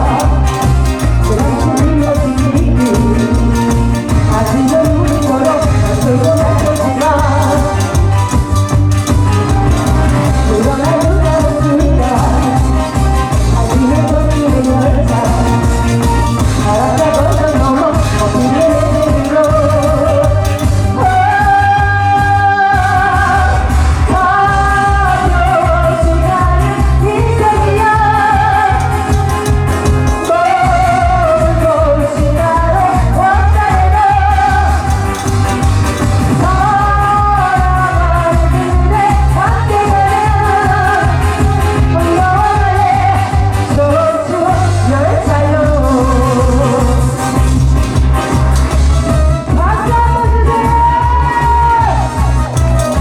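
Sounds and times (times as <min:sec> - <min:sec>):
backing track bass beat: 0:00.0 - 0:21.3, 0:27.9 - 0:31.5, 0:34.1 - 0:37.8, 0:46.5 - 0:49.7, 0:52.0 - 0:53.0.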